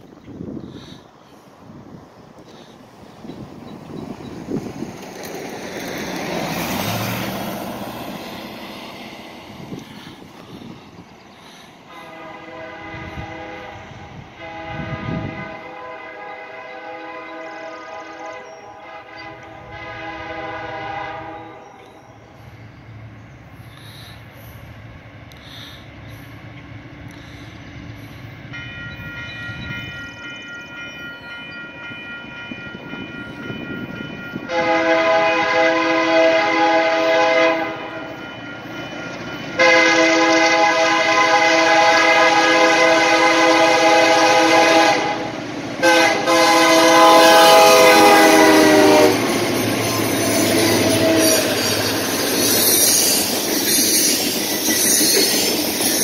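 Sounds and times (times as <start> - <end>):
locomotive air horn blasts: 11.4 - 21.7, 34.4 - 38.1, 39.6 - 49.4, 50.2 - 51.7.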